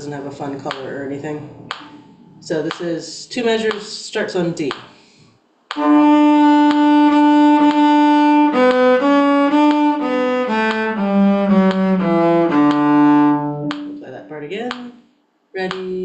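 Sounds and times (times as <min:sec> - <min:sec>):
bowed string instrument playing: 0:05.8 - 0:14.3.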